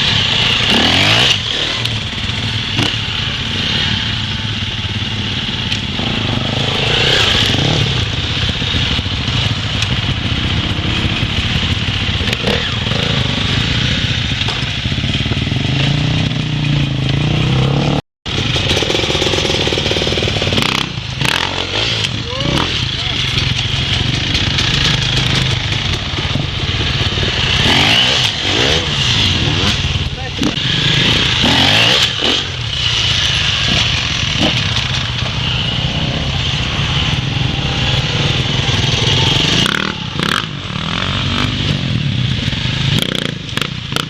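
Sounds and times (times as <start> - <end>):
dirt bike engines revving: 0.0 - 44.0.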